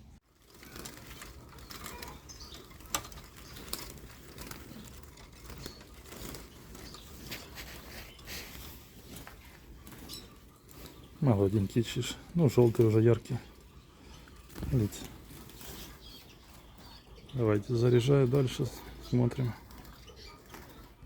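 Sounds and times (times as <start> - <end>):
small bird fluttering and scrabbling: 0.3 - 21.0
faint high bird chirps: 0.6 - 3.9.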